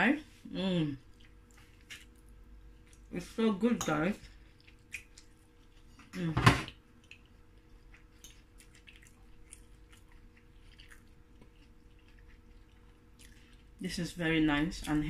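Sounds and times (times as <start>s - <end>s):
person chewing food: 1.0s - 3.2s, 4.2s - 6.1s, 6.7s - 13.8s.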